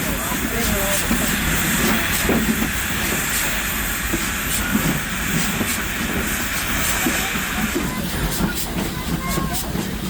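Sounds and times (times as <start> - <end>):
steam locomotive rumbling and hissing: 0.0 - 10.0.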